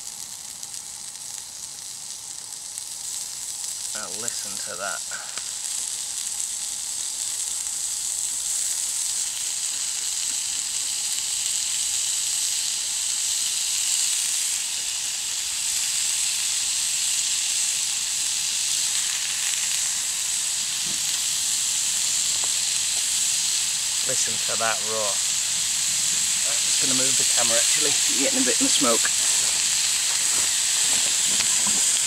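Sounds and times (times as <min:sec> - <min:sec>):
bacon sizzling in a skillet: 0:00.0 - 0:32.0.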